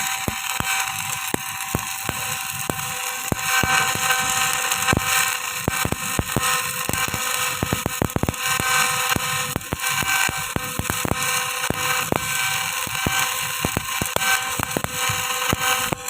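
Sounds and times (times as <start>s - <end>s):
welding arc sizzle: 0.0s - 16.0s
sharp pops and snaps: 0.3s - 16.0s.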